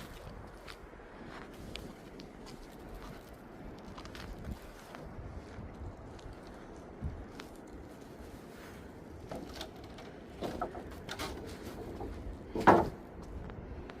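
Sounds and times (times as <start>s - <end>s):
knocks and clatters: 9.3s - 13.0s.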